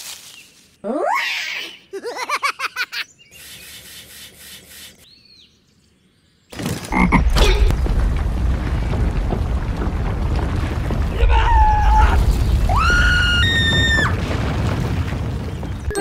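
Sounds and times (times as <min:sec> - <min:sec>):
heavy machine engine rumble: 0:06.9 - 0:16.0.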